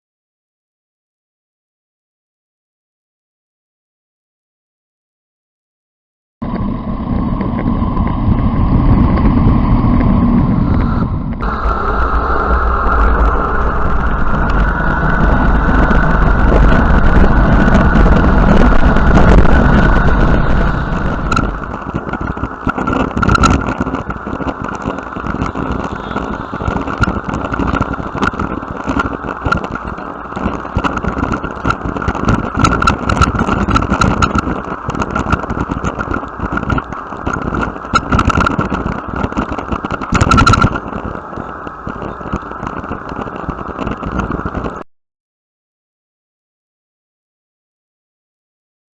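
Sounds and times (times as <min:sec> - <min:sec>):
bicycle ride noise: 0:06.4 - 0:44.9
motor vehicle passing: 0:06.5 - 0:31.6
bicycle clicks and rattles: 0:12.8 - 0:44.8.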